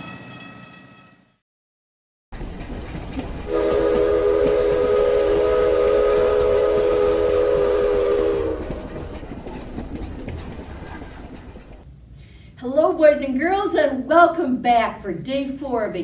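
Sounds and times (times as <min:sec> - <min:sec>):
train rumbling: 0:02.4 - 0:12.0
train whistle blast: 0:03.5 - 0:09.2.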